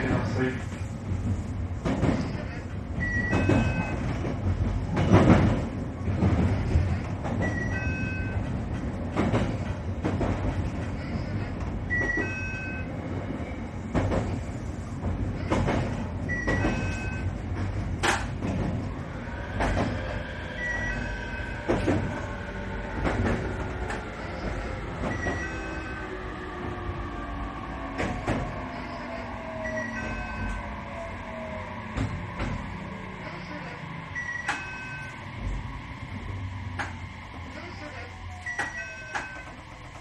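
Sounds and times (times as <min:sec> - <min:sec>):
falling whine of braking train: 0:00.0 - 0:40.0
train wheels clacking over rail joints: 0:03.2 - 0:07.6.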